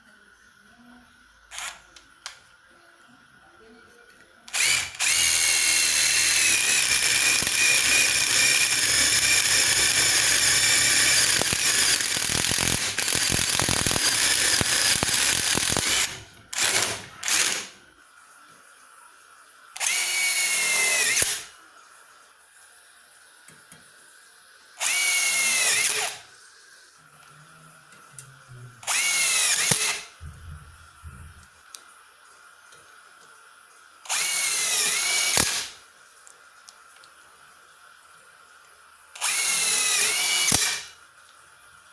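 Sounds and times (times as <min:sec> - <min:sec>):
cordless impact driver whining: 0:01.5 - 0:01.8, 0:04.5 - 0:17.7, 0:19.8 - 0:21.5, 0:24.8 - 0:26.2, 0:28.8 - 0:30.1, 0:34.1 - 0:35.7, 0:39.2 - 0:40.9.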